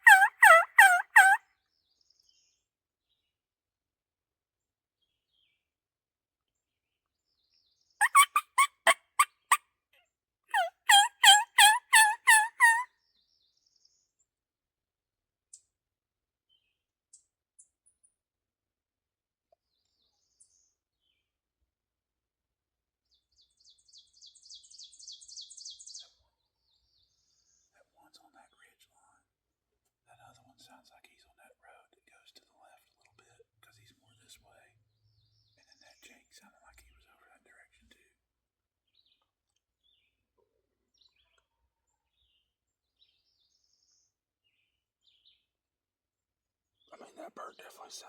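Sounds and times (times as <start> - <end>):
songbirds chirping: 0.0 - 3.4, 5.0 - 5.7, 6.5 - 9.6, 10.5 - 14.4, 23.1 - 29.4, 30.1 - 38.2, 38.9 - 45.6, 46.6 - 48.0.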